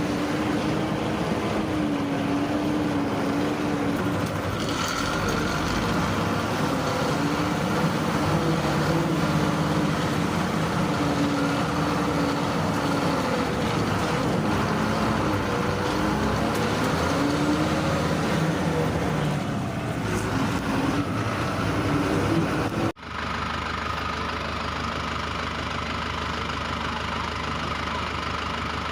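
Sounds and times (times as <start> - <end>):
heavy diesel engines under load: 0.0 - 28.9.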